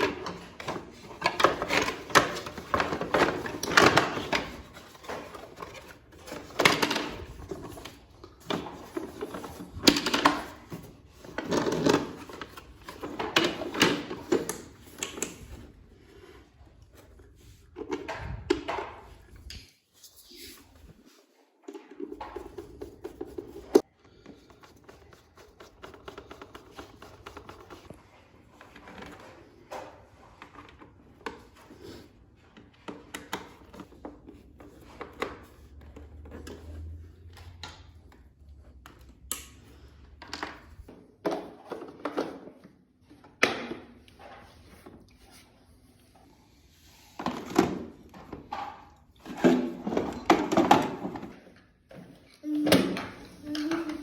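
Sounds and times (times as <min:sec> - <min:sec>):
hard parts clicking and knocking: 0:47.2 - 0:54.0.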